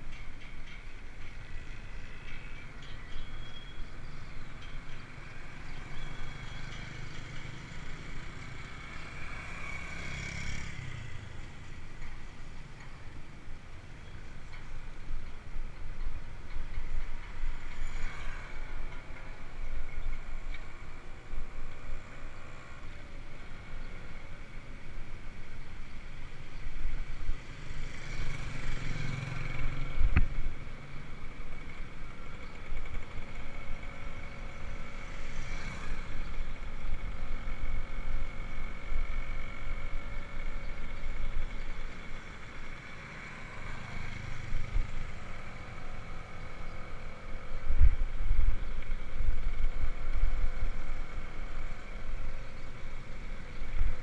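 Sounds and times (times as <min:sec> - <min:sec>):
bicycle tyres rumbling on road: 0:00.2 - 0:13.9, 0:14.7 - 0:54.0
wind on microphone: 0:47.4 - 0:52.3.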